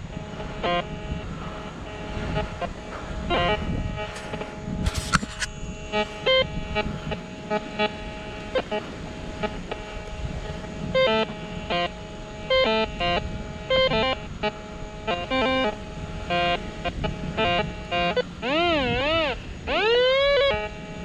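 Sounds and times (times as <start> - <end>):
faint steady electronic tone: 0.0 - 21.0
metal detector beeps: 1.8 - 8.8.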